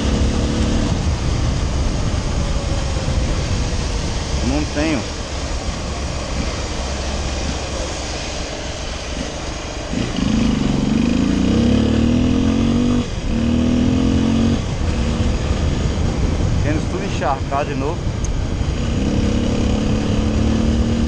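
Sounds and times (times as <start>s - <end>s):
small motorcycle engine: 0.0s - 1.0s, 9.9s - 15.4s, 18.7s - 21.0s
wind and road noise: 0.0s - 21.0s.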